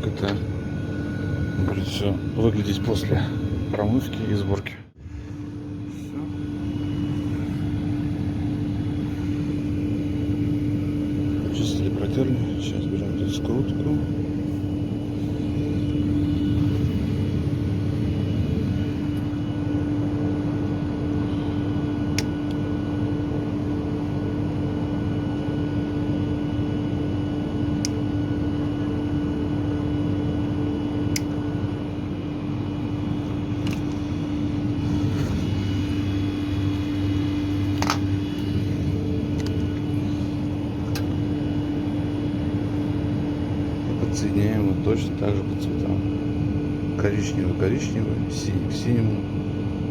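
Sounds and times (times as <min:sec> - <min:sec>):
machinery hum: 0:00.0 - 0:49.9.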